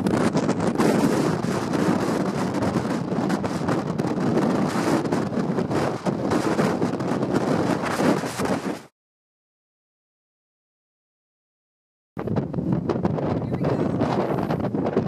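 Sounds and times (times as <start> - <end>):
wind buffeting microphone: 0.0 - 8.9, 12.2 - 15.0.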